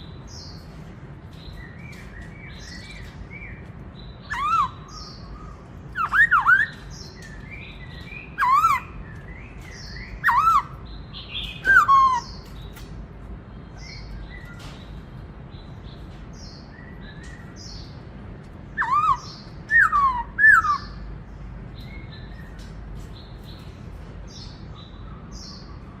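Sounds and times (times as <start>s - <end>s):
soft bird chirps: 0.0s - 18.1s, 21.7s - 26.0s
bird singing whistled phrases: 5.9s - 7.6s, 9.9s - 12.4s, 18.8s - 21.0s.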